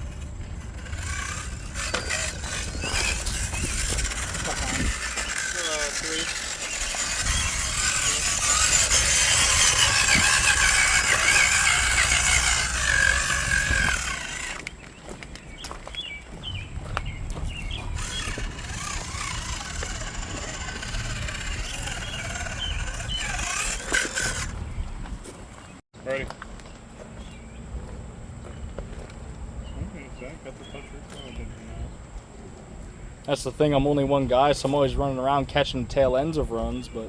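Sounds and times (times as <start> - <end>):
small electric motor whining: 0.0 - 14.8, 17.2 - 24.8.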